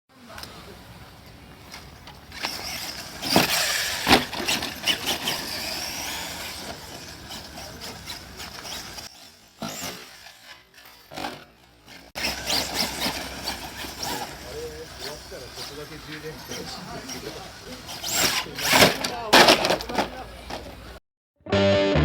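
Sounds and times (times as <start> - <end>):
tyres rushing on rough ground: 0.3 - 10.1, 11.0 - 21.0
electric motor whine: 0.5 - 9.2, 12.0 - 19.1.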